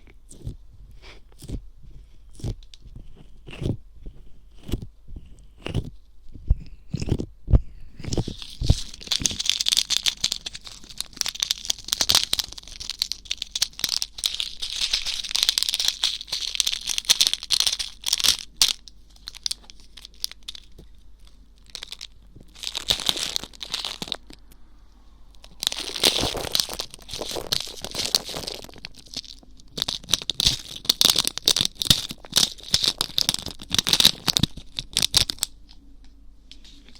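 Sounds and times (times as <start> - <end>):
ear pick scratching and scraping: 25.4 - 35.1.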